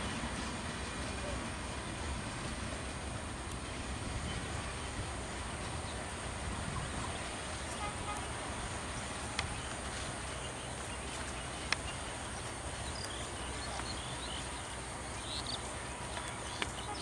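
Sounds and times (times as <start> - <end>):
low outdoor rumble: 0.0 - 17.0
birds chirping: 6.8 - 17.0.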